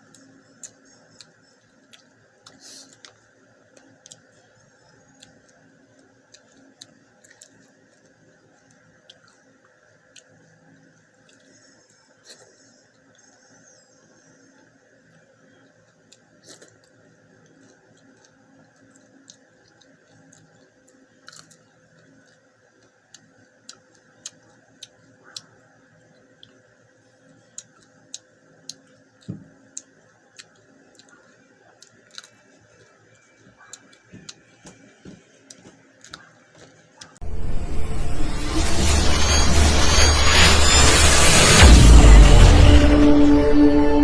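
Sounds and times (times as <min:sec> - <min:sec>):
chewing shrimp shells crunching: 0:00.0 - 0:13.8, 0:15.1 - 0:37.2
loud music: 0:37.2 - 0:44.0.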